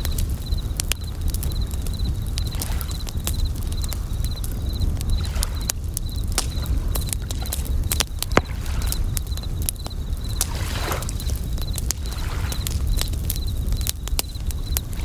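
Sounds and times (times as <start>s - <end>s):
campfire crackling and popping: 0.0s - 15.0s
crickets trilling: 0.0s - 15.0s
soft wave washing: 6.5s - 13.0s.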